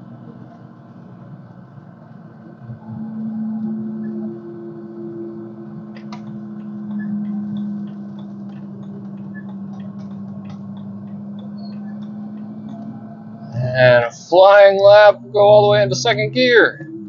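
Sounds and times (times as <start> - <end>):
car engine droning: 0.0 - 17.0
light irregular ticks: 5.9 - 13.0.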